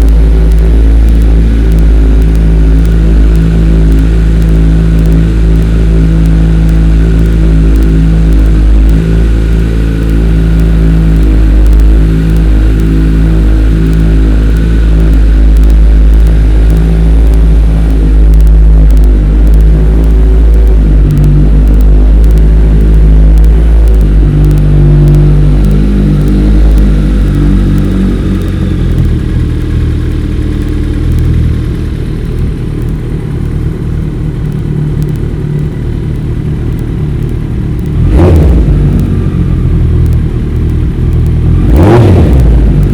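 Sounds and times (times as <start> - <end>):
distorted motorcycle engine: 0.0 - 42.9.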